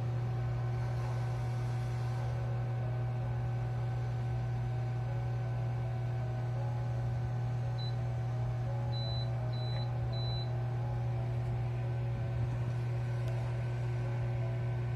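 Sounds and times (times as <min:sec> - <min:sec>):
steady low hum: 0:00.0 - 0:14.9
microwave control panel beeps: 0:07.7 - 0:08.1, 0:08.9 - 0:10.6.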